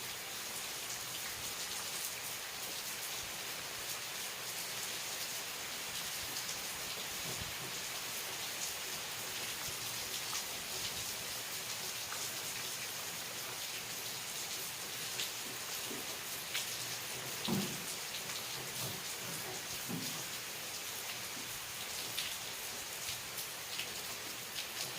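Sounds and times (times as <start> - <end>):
steady rain hiss: 0.0 - 24.9.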